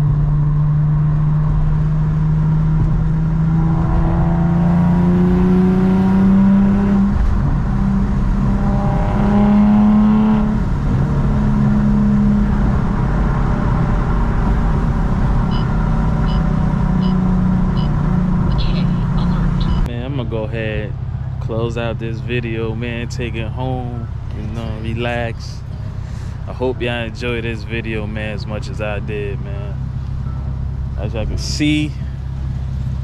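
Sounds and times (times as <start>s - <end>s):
car engine accelerating: 0.0s - 33.0s.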